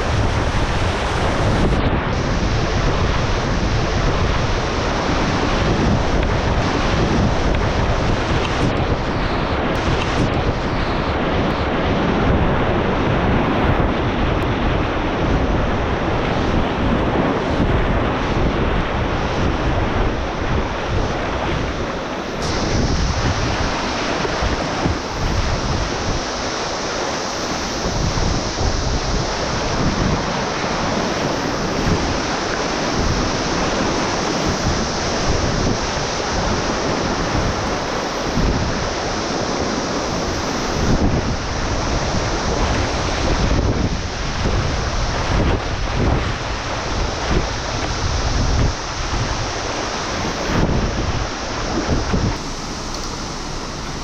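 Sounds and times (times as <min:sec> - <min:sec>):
rushing river water: 0:00.0 - 0:54.0
wind buffeting microphone: 0:00.0 - 0:54.0.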